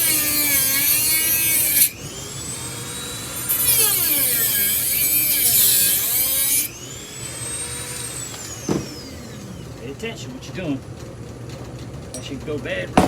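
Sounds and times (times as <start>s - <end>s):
bit grinding metal: 0.0s - 9.9s
rotary tool whining: 0.0s - 10.3s.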